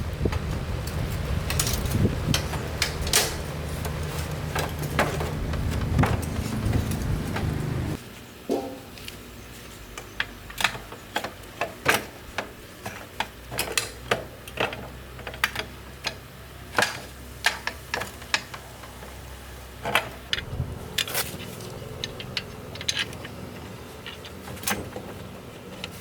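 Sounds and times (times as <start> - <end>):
hand tools clicking and knocking: 0.2 - 9.1, 19.8 - 26.0.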